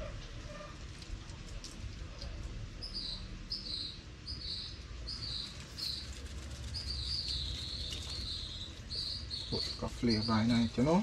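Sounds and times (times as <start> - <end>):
bird chirping: 2.2 - 11.0.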